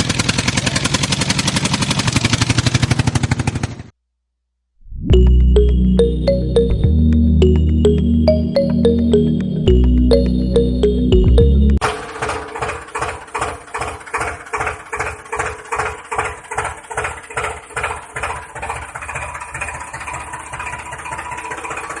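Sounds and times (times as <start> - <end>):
small motor chugging: 0.0 - 3.9, 12.1 - 22.0.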